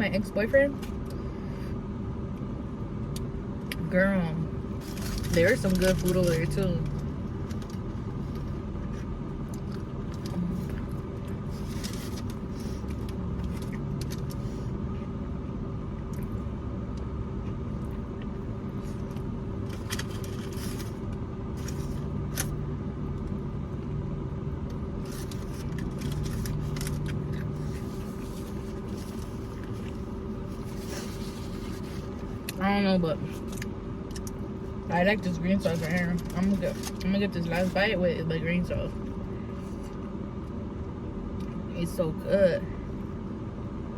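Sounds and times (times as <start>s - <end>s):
engine hum with whine: 0.0s - 43.9s
food wrapper crinkling: 4.8s - 14.4s, 25.0s - 32.6s.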